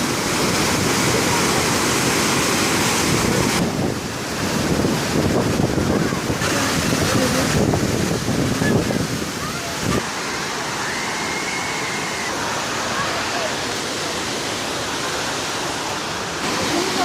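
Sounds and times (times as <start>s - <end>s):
waterfall rushing roar: 0.0s - 17.0s
wind buffeting microphone: 3.0s - 10.0s.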